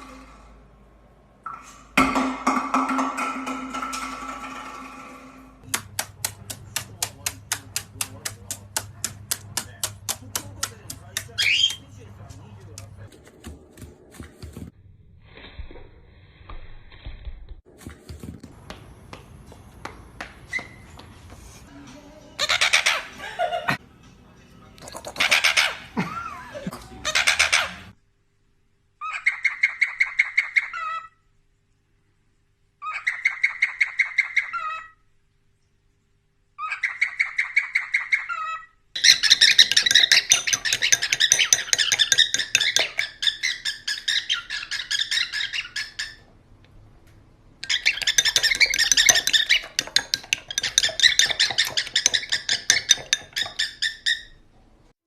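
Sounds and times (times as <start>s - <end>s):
parrot chirping and squawking: 11.2s - 11.9s, 22.4s - 23.2s, 24.9s - 26.0s, 27.0s - 28.0s, 29.0s - 31.2s, 32.8s - 35.0s, 36.6s - 46.3s, 47.6s - 54.4s.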